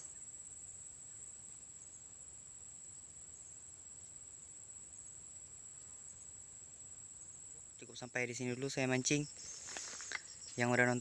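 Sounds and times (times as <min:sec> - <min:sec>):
crickets trilling: 0:00.0 - 0:11.0
low background hiss: 0:00.0 - 0:11.0.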